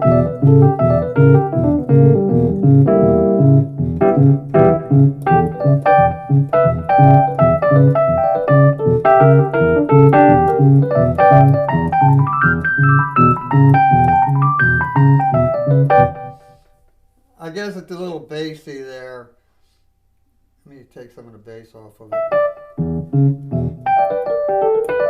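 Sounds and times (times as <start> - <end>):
repeating bass line: 0.0 - 16.3
electric piano chords: 0.0 - 16.8, 22.1 - 25.0.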